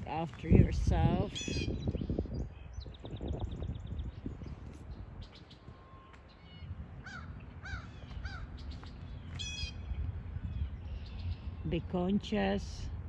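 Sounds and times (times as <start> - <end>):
low steady rumble: 0.0 - 13.0
crow cawing: 7.0 - 8.5.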